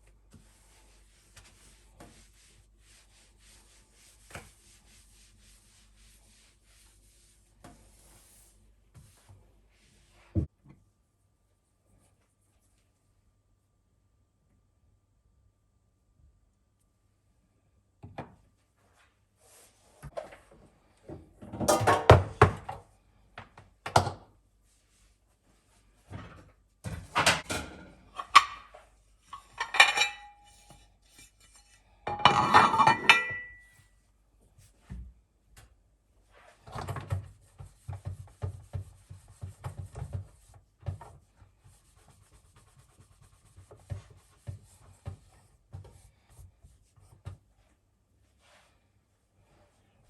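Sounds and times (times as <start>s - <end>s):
dishes and cutlery clinking: 27.3s - 28.7s, 29.3s - 33.8s.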